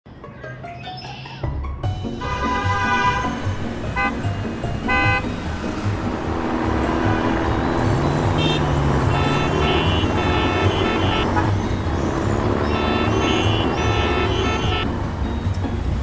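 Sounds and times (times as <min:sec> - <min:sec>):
background music: 0:00.1 - 0:16.0
vehicle engine rumbling: 0:01.6 - 0:16.0
horn-like toots: 0:06.9 - 0:11.6, 0:12.7 - 0:14.9.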